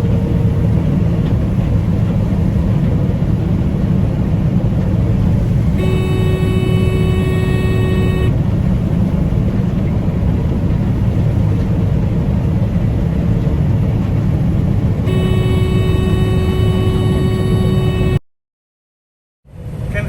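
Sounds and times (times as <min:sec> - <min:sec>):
combine harvester engine drone: 0:00.0 - 0:18.2, 0:19.5 - 0:20.0
multi-note tone: 0:05.8 - 0:08.4, 0:15.1 - 0:18.2.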